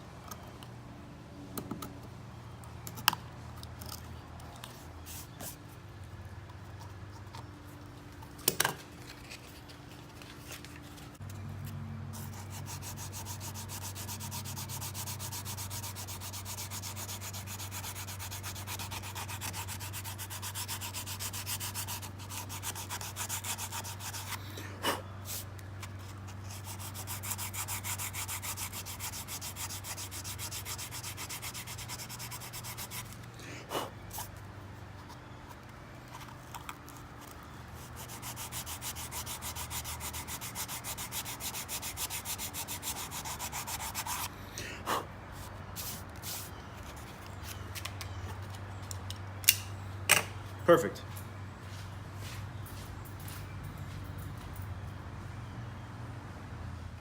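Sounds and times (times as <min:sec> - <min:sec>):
abrasive rasping on wood: 0:12.4 - 0:24.4, 0:26.5 - 0:33.1.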